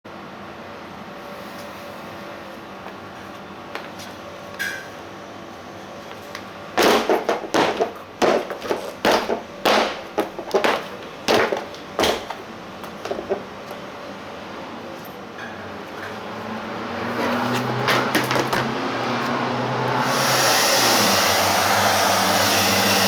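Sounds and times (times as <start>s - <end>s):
knocks and rattling thuds: 6.8s - 13.5s, 17.7s - 18.8s.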